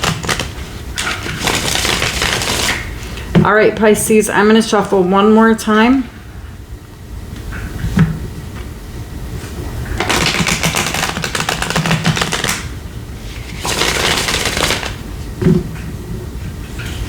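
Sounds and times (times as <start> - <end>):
cards shuffling flutter: 0.0 - 2.9, 10.0 - 12.7, 13.3 - 15.0.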